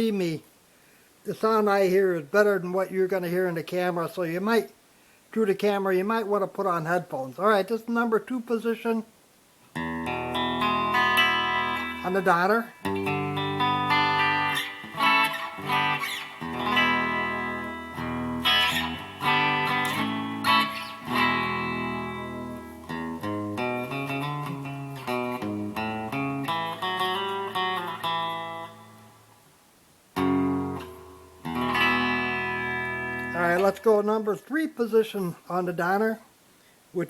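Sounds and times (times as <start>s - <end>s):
electric guitar through amplifier: 9.7s - 29.4s, 30.2s - 34.1s.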